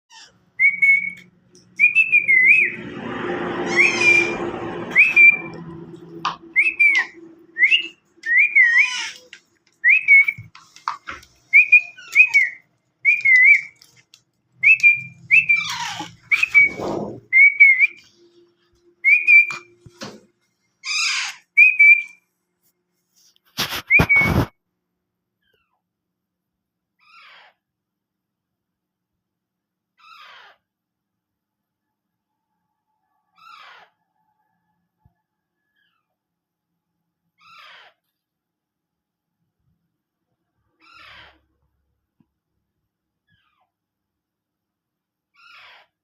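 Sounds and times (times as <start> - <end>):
parrot scratchy calls: 3.6 - 5.6, 6.6 - 14.0, 14.7 - 18.1, 20.8 - 22.1, 23.5 - 24.5, 37.4 - 38.0, 40.8 - 41.4
parrot whistling wavering note: 3.6 - 9.1.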